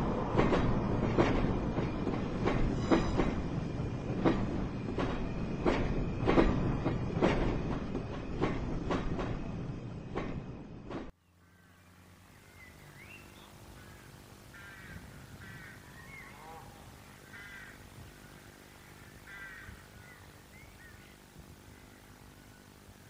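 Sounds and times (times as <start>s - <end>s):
low steady hum and hiss: 11.1s - 23.0s.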